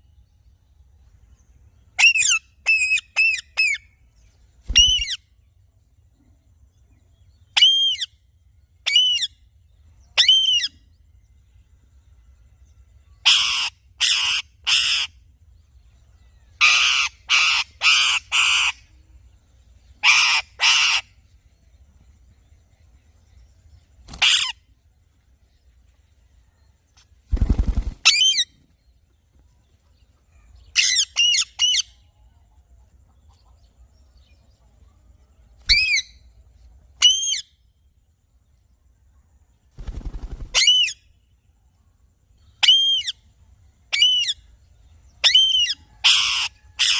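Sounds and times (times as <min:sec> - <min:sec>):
parrot calling: 0:20.0 - 0:21.1.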